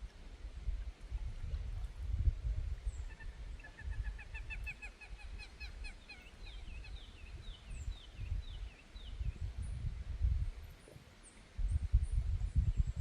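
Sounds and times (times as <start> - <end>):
bird calling: 2.8 - 8.9.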